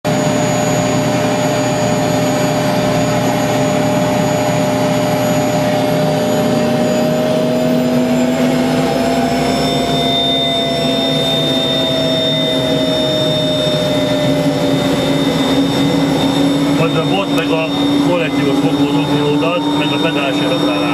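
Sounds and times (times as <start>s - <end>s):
helicopter turbine whine: 0.0s - 20.9s
high whistle: 4.7s - 20.9s.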